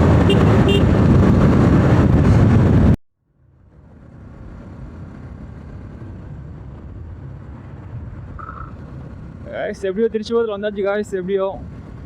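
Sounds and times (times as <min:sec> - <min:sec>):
wind rush over microphone: 0:00.0 - 0:03.0
motorcycle engine and road rumble: 0:00.0 - 0:12.0.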